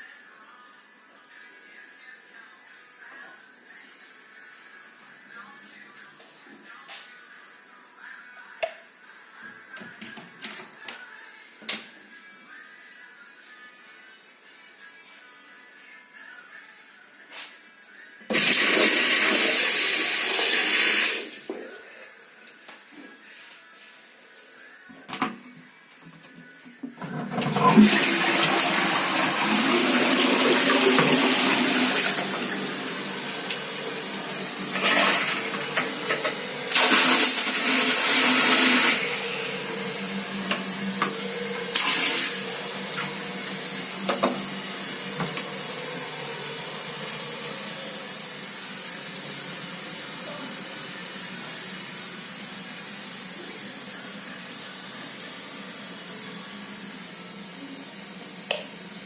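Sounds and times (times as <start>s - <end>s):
toilet tank refilling: 18.3s - 21.5s, 26.9s - 53.1s
toilet flushing: 18.3s - 21.6s, 26.9s - 59.0s
water hissing: 28.9s - 52.4s.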